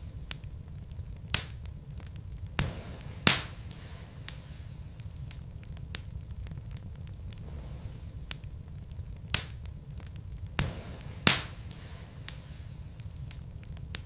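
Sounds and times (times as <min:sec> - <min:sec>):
fire crackling and rumbling: 0:00.0 - 0:14.0
sharp wood pops: 0:02.5 - 0:03.6, 0:10.5 - 0:12.5.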